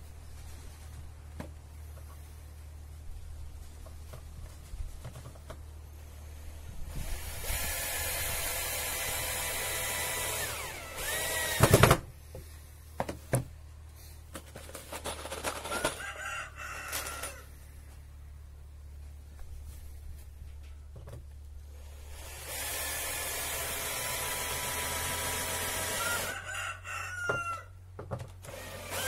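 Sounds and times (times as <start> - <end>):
power drill whining: 6.9 - 12.0, 21.7 - 26.3, 28.4 - 29.0.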